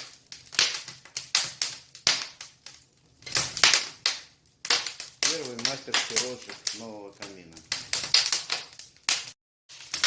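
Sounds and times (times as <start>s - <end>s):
wood fire crackling and popping: 0.0s - 10.0s.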